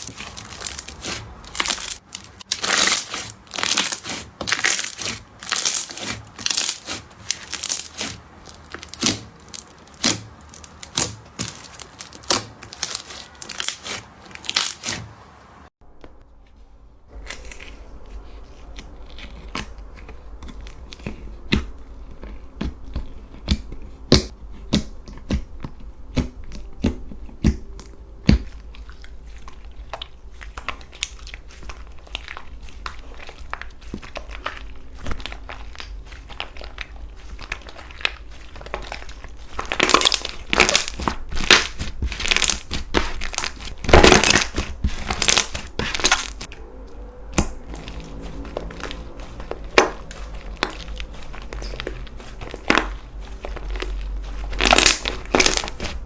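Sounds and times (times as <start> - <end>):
slime squeezed by hand crackling: 0.0 - 15.1, 27.4 - 56.0.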